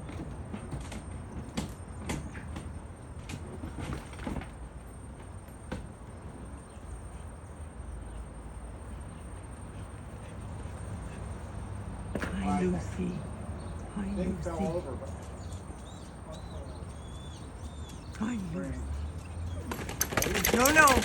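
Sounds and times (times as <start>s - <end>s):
clicks and rustles of handling: 19.6s - 21.0s.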